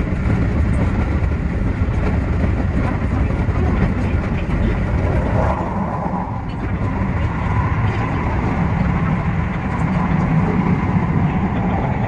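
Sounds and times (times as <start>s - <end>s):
faint clickety-clack: 0.0s - 12.0s
train wheels rumbling on rails: 0.0s - 12.0s.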